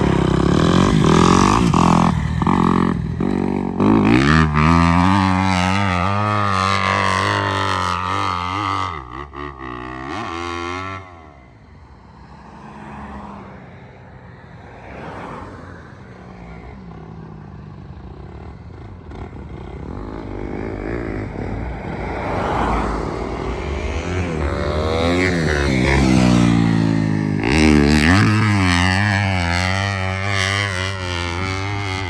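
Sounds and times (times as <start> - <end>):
dirt bike engine revving: 0.0 - 11.2, 18.7 - 32.0.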